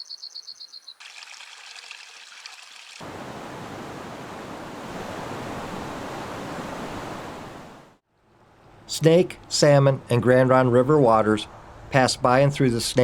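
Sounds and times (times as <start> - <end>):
crickets chirping: 0.0 - 1.0
river water rushing: 3.0 - 8.0.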